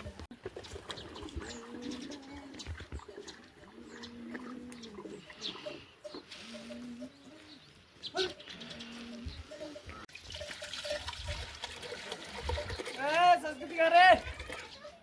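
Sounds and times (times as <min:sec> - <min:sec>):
low bird coos: 0:01.0 - 0:10.0
water splashing: 0:10.1 - 0:14.8.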